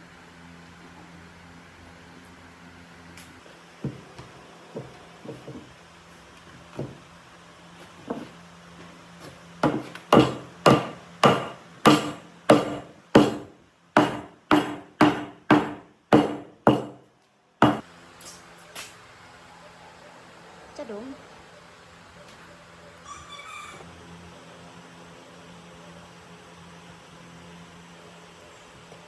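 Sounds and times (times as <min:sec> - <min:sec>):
hammering on wood: 0:09.6 - 0:17.0, 0:17.6 - 0:17.8.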